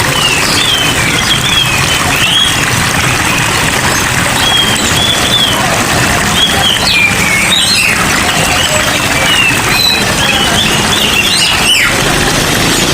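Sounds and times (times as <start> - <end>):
cage birds chirping: 0.0 - 12.9
rain falling: 0.0 - 12.9.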